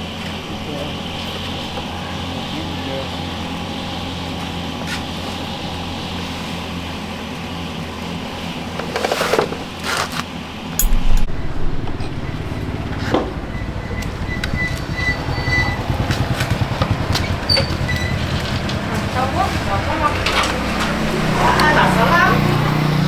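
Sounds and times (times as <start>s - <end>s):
motorcycle engine running: 0.0s - 23.0s
metallic clatters and scrapes: 8.8s - 12.2s.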